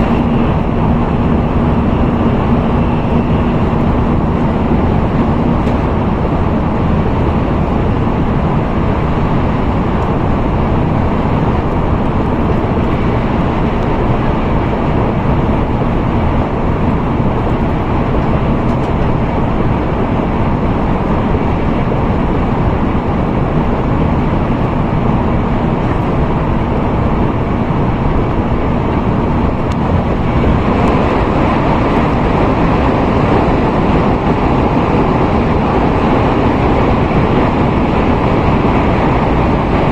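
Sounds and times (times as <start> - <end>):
train rumble and rushing: 0.0 - 39.9.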